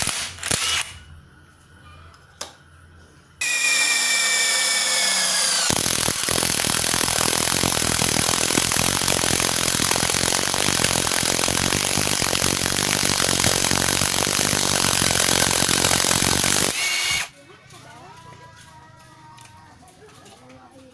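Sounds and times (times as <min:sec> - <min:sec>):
impact driver motor whine: 0:00.0 - 0:01.0, 0:03.4 - 0:17.3.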